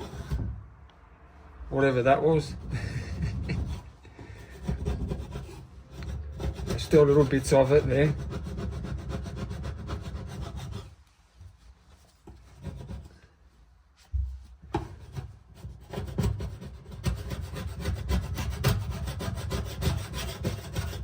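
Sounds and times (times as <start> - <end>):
paint scraper scraping wood: 0.0 - 0.6, 2.4 - 11.0, 12.1 - 13.4, 14.8 - 21.0.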